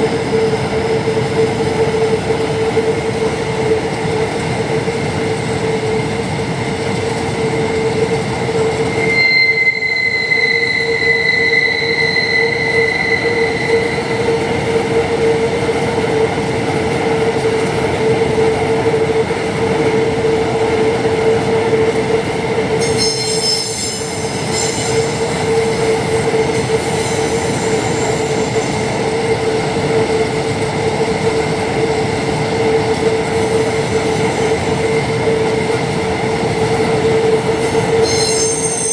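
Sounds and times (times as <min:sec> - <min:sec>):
ringing wheel squeal: 0:08.6 - 0:15.3, 0:22.8 - 0:31.1, 0:37.5 - 0:38.9
shrill high squeals: 0:08.8 - 0:14.9, 0:22.8 - 0:30.8, 0:37.6 - 0:38.9
train wagons rumbling: 0:10.3 - 0:38.9.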